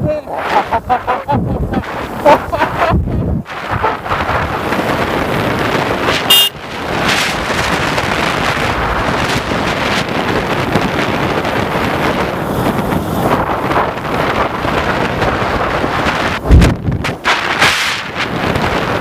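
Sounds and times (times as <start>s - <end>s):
wind rush on microphone: 0.0s - 19.0s
horn beep: 6.2s - 6.6s.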